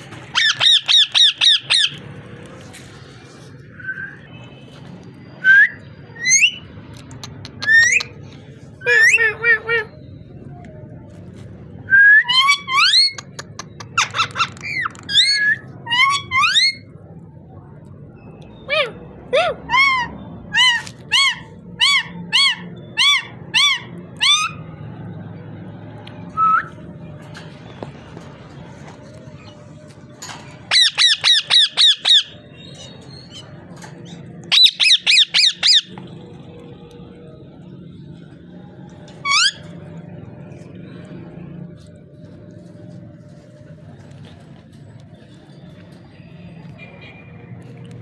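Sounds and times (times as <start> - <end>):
parrot squeaky calls: 0.2 - 2.0, 12.2 - 16.9, 18.7 - 24.7, 30.6 - 36.0, 39.2 - 39.8.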